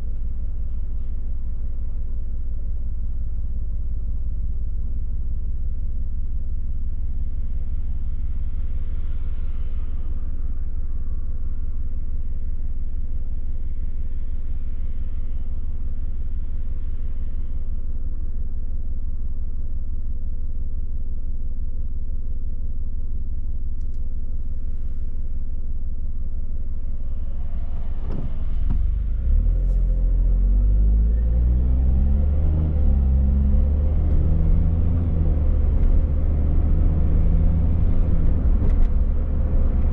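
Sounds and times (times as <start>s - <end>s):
car engine rumbling and accelerating: 0.0s - 39.9s
passing traffic: 26.6s - 39.9s.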